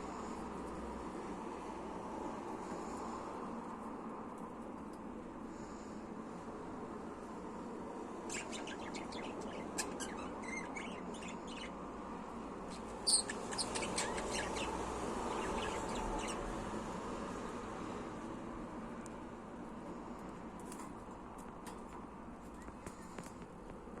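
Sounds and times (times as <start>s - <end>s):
budgie chirping: 8.3s - 11.8s, 12.6s - 16.4s.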